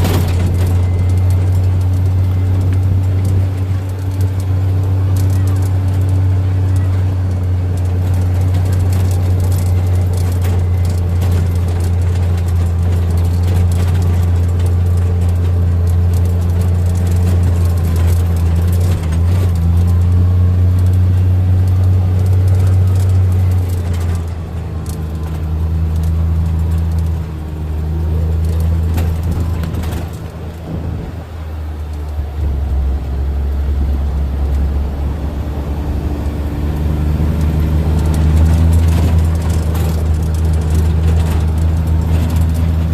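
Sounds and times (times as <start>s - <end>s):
vehicle engine and road noise: 0.0s - 42.9s.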